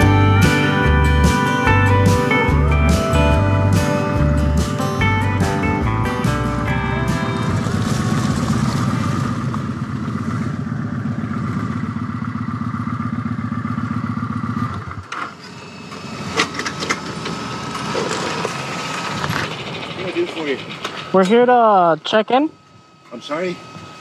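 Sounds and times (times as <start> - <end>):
motorcycle engine idling: 0.0 - 15.1.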